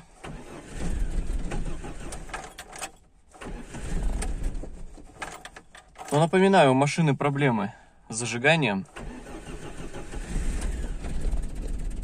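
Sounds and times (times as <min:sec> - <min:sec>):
car engine cranking on starter: 0:00.0 - 0:06.3, 0:08.9 - 0:12.0.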